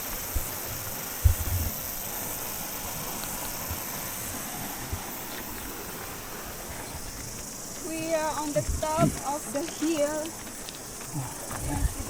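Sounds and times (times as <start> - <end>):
cicadas chorus: 0.0 - 12.0
thumps on microphone: 8.6 - 9.3.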